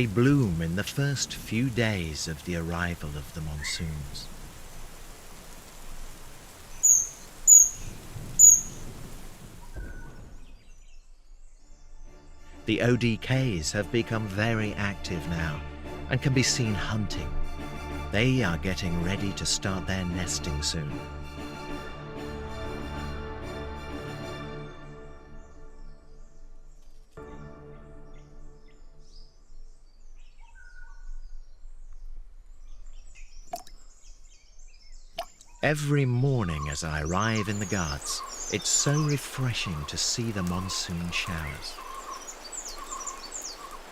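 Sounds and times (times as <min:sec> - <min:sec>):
steady rain hiss: 0:00.0 - 0:10.8, 0:35.6 - 0:43.9
birds chirping: 0:00.0 - 0:17.2, 0:28.1 - 0:43.9
whistled bird notes: 0:06.7 - 0:08.8, 0:09.6 - 0:12.0, 0:32.6 - 0:43.9
high-pitched bird calls: 0:06.8 - 0:08.8.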